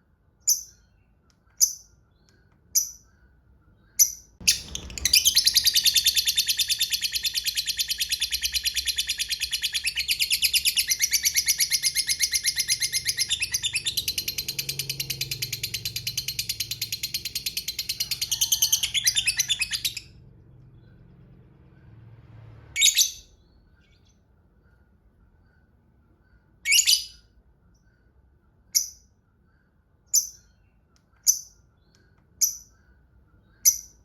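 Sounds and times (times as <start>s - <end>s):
sharp bird chirps: 0.4s - 21.1s
lovebird chattering: 4.0s - 20.1s.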